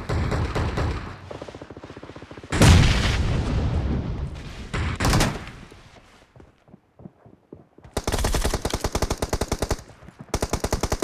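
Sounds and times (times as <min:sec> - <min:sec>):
automatic gunfire: 0:08.0 - 0:11.0.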